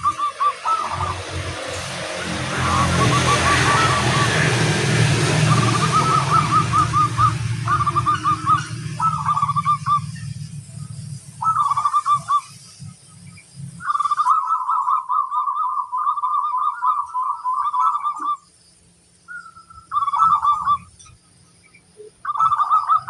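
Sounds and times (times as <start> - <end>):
dove cooing: 0.0 - 10.3, 11.4 - 12.5, 13.8 - 18.4, 19.4 - 20.9, 22.0 - 23.0
low steady rumble: 0.0 - 14.4.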